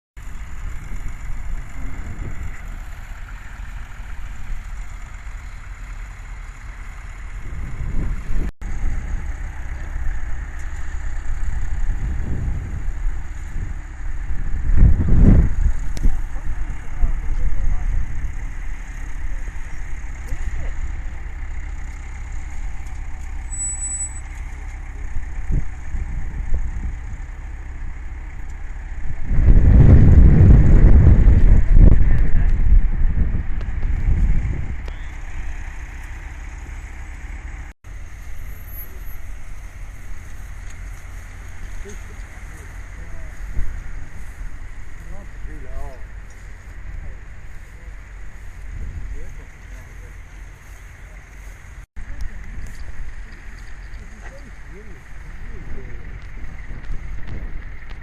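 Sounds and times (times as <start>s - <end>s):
tractor engine running: 0.2s - 58.0s
wind buffeting microphone: 0.3s - 3.2s, 7.3s - 20.6s, 25.0s - 27.4s, 28.9s - 35.6s, 48.4s - 49.5s, 52.1s - 58.0s
thin high tone: 23.4s - 24.4s.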